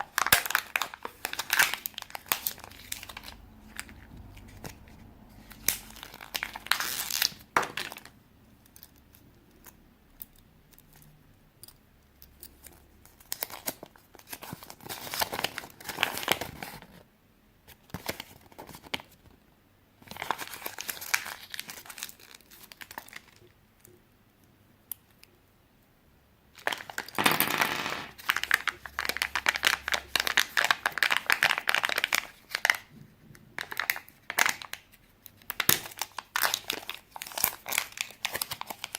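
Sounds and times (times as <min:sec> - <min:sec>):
crinkling rustling noise: 0:00.0 - 0:09.2, 0:12.6 - 0:17.1, 0:17.7 - 0:19.4, 0:20.0 - 0:24.0, 0:26.5 - 0:38.9.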